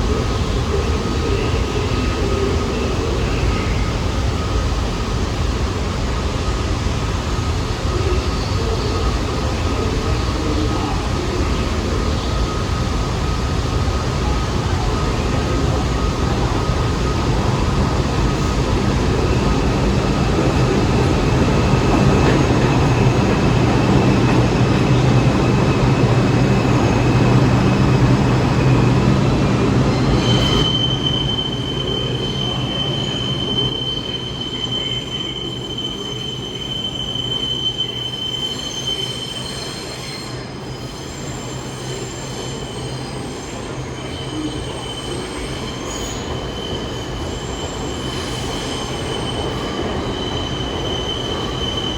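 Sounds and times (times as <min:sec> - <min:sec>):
subway train rumble: 0:00.0 - 0:51.9
high-pitched wheel squeal: 0:19.4 - 0:51.9.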